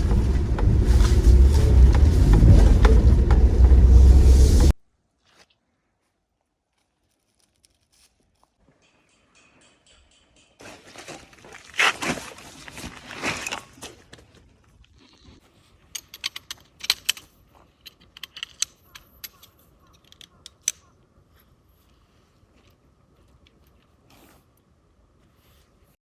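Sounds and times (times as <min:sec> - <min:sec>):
camping gear rustling: 0:00.0 - 0:08.6, 0:10.6 - 0:18.2.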